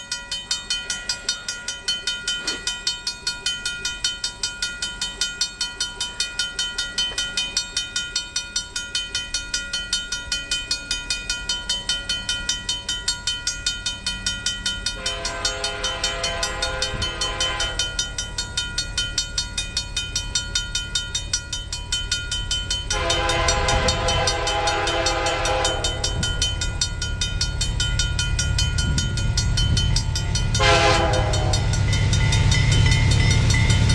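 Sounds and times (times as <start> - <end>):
crossing bell ringing: 0.0 - 33.9
locomotive air horn blasts: 15.0 - 18.1, 22.9 - 26.4, 30.6 - 31.8.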